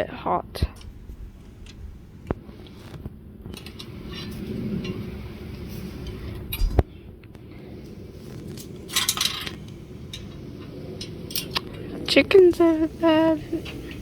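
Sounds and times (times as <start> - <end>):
rustling and light clinks: 8.5 - 10.4.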